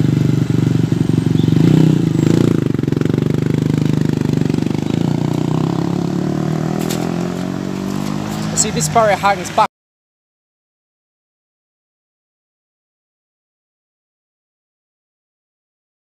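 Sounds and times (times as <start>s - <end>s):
vehicle engine running: 0.0s - 9.7s.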